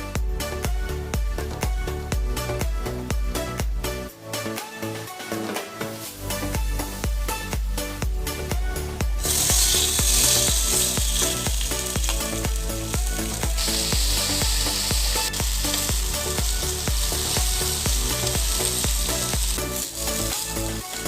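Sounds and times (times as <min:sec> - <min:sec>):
background music with a beat: 0:00.0 - 0:21.0
food sizzling in a pan: 0:09.2 - 0:21.0.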